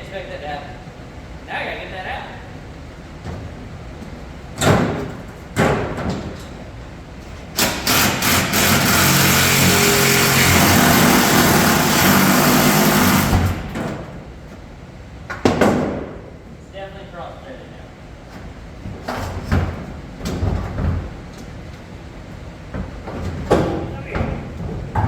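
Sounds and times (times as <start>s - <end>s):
power tool running on a bolt: 7.6s - 13.7s.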